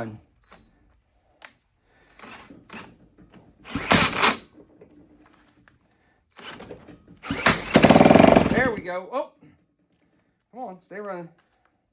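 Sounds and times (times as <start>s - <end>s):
rasping burst: 7.3s - 8.9s.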